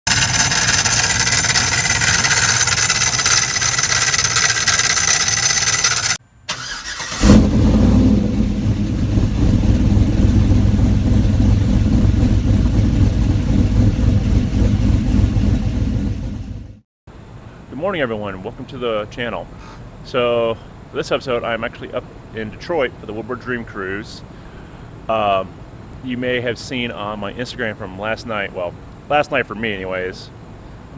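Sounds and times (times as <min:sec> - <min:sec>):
engine grinding noise: 0:00.0 - 0:16.8
engine starting and running: 0:00.0 - 0:16.8
harsh mechanical noise: 0:00.0 - 0:16.8.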